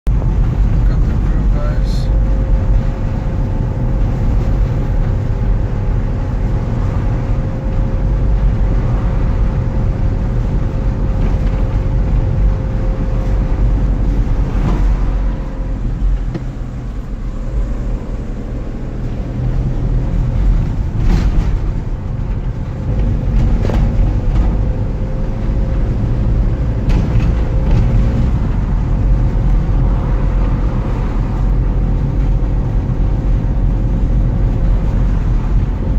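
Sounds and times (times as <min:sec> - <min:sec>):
road vehicle engine rumble: 0:00.0 - 0:35.9.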